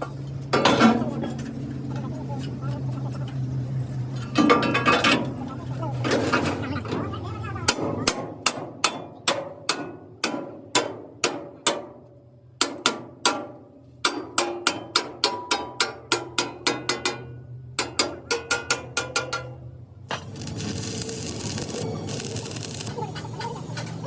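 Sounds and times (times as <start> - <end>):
hammer striking steel: 7.7 - 12.0, 12.6 - 22.7.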